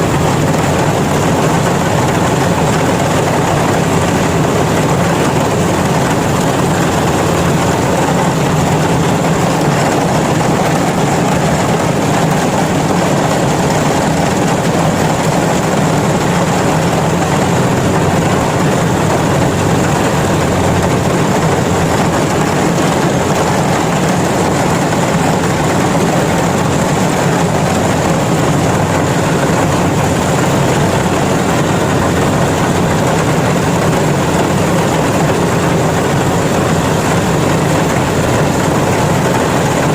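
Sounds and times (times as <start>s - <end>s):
combine harvester diesel engine: 0.0s - 39.9s.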